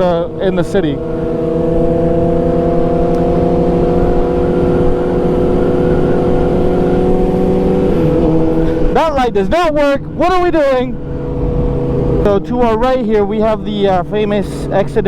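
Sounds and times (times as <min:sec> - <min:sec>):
motorcycle engine at steady speed: 0:00.0 - 0:15.0
wind noise on microphone: 0:10.9 - 0:13.0.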